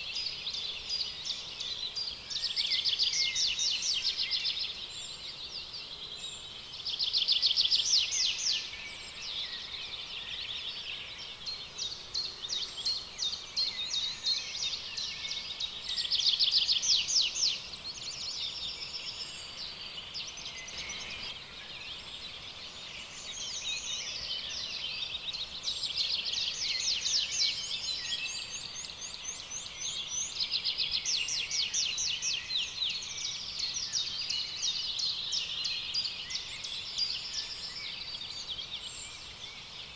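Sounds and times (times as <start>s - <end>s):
birds trilling and chirping: 20.6s - 21.4s.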